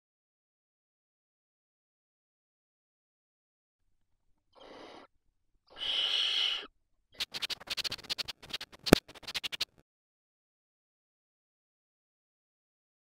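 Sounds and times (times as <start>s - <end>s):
barn owl hissing: 4.6s - 5.1s, 5.7s - 9.7s
sharp clicks and scratches: 7.2s - 9.8s.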